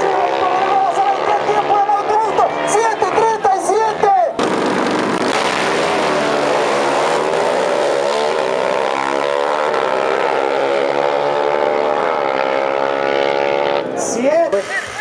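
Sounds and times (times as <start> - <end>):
motorcycle engine at high revs: 5.0 - 13.9.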